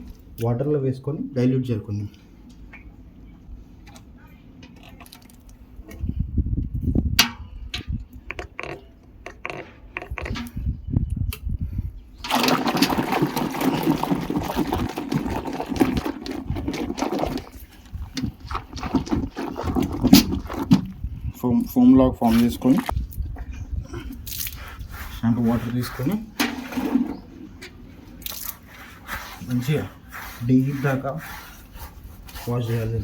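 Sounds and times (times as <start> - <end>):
water sloshing in a container: 3.8 - 6.1, 12.2 - 23.2, 24.2 - 32.7.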